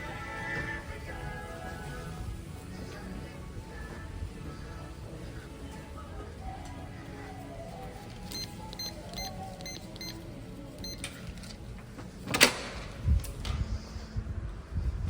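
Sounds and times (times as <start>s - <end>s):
keypad beeps: 8.3s - 10.2s, 10.8s - 11.2s.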